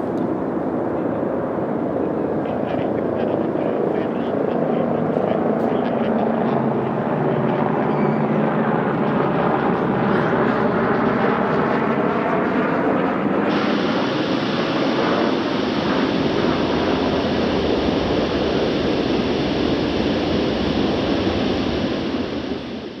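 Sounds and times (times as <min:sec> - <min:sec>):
jet engine rumble: 0:00.0 - 0:23.0
high-pitched hiss: 0:13.5 - 0:22.9.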